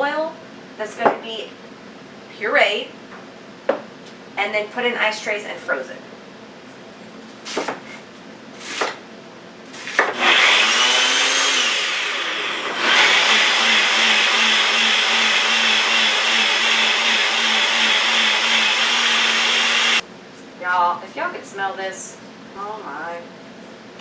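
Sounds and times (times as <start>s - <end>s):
blender motor running: 10.1s - 20.0s.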